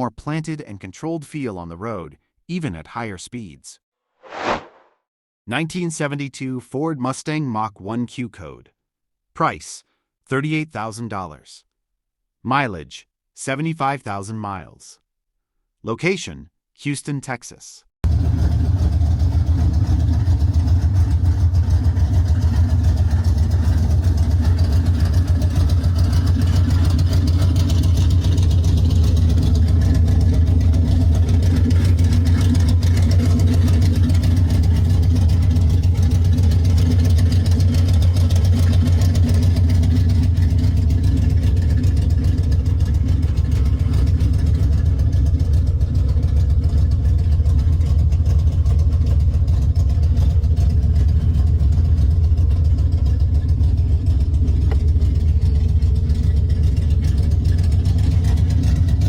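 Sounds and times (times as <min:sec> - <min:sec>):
car engine idling: 0:18.0 - 0:59.0.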